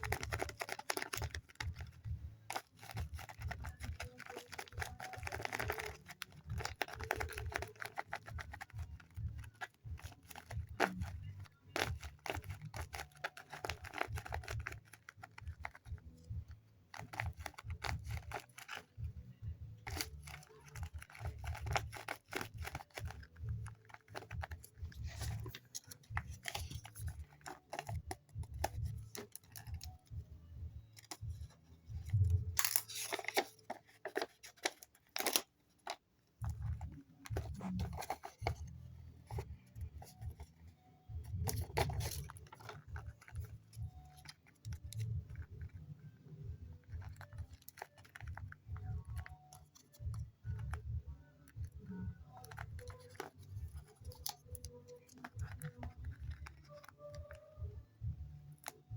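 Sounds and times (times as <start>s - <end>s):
paper crinkling and tearing: 0.0s - 16.3s, 16.9s - 19.0s, 19.8s - 30.0s, 31.0s - 45.8s, 46.8s - 50.8s, 51.8s - 57.5s.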